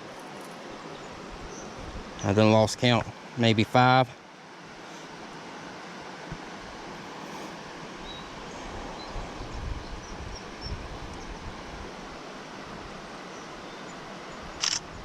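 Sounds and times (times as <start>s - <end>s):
creek water flowing: 0.0s - 15.0s
wind: 0.0s - 15.0s
wind buffeting microphone: 8.8s - 11.9s.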